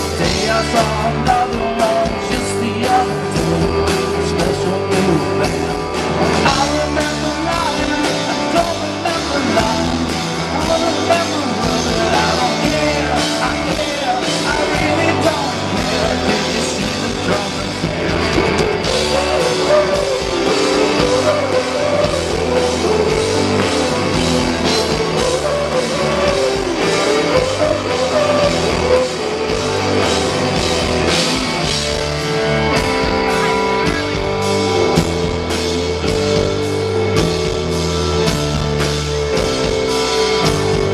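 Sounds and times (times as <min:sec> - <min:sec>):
person singing: 0:00.0 - 0:31.4
drums: 0:00.0 - 0:40.9
guitars: 0:00.0 - 0:40.9.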